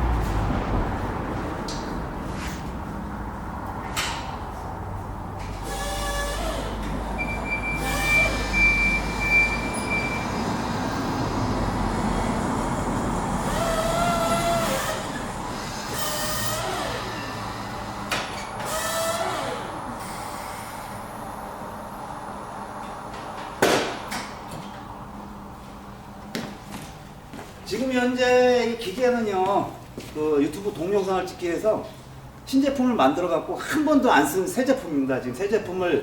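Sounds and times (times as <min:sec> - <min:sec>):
forklift engine running: 0:05.2 - 0:23.4
hydraulics whining: 0:05.4 - 0:23.6
high squeal: 0:07.2 - 0:10.4.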